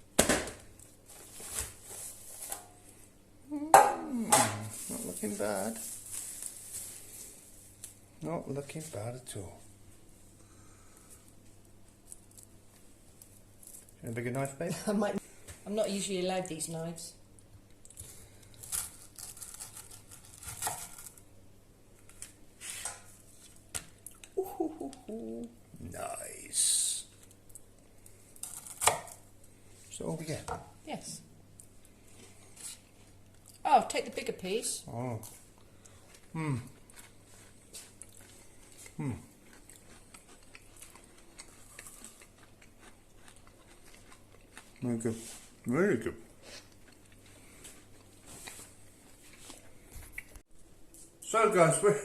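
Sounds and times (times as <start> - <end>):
person humming mm: 3.4 - 4.7, 24.4 - 25.9, 36.3 - 36.8, 39.0 - 39.3
knife crunching through chocolate cake: 17.9 - 21.2
people chewing: 35.0 - 45.7, 46.3 - 50.4.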